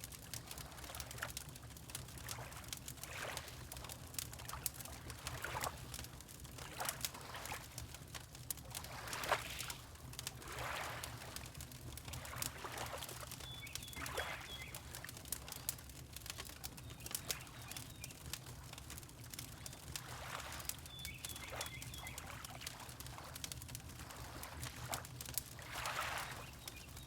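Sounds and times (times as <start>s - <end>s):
wood fire crackling: 0.0s - 27.0s
water lapping: 0.3s - 27.0s.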